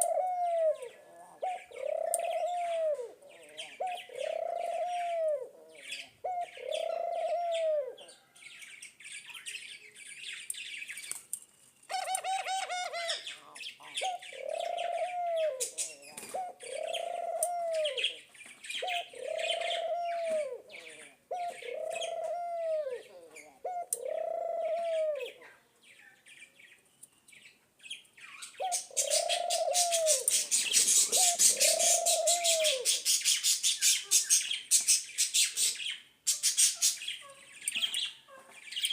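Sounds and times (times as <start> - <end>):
bird cooing: 0.0 - 9.6, 11.9 - 25.7, 28.2 - 38.9
birds twittering: 0.0 - 38.9
loud high-pitched bird chatter: 11.9 - 22.2, 27.9 - 38.9.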